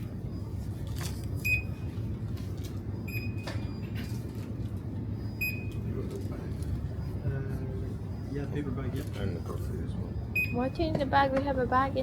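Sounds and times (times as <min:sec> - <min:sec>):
low shop hum: 0:00.0 - 0:12.0
barcode scanner beeping: 0:01.4 - 0:01.9, 0:03.0 - 0:03.9, 0:05.2 - 0:05.9, 0:10.3 - 0:11.2.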